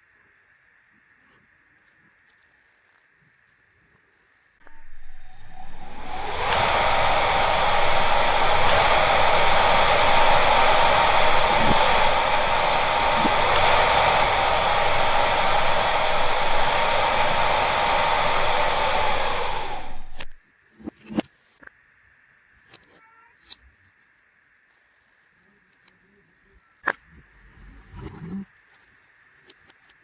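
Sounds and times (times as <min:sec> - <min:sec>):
electric motor whining: 0:04.6 - 0:20.4.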